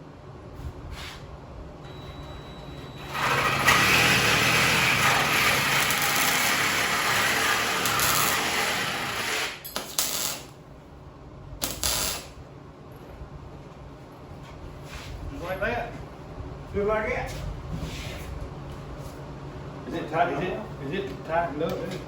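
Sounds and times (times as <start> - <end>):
welder buzzing: 3.0 - 10.6, 11.6 - 12.4
short tack weld bursts: 3.1 - 10.5, 11.6 - 12.4.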